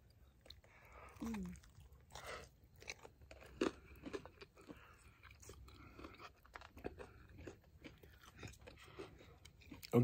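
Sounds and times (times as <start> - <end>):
chewing with soft crunches: 0.0 - 10.0.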